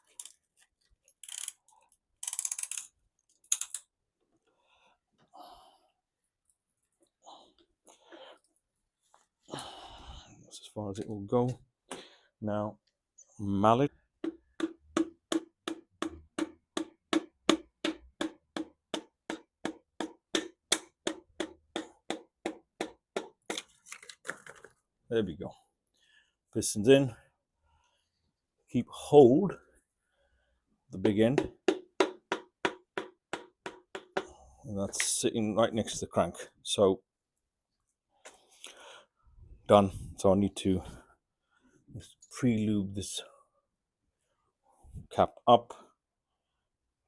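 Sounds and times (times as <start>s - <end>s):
mallet tapping on piston: 14.2s - 23.3s.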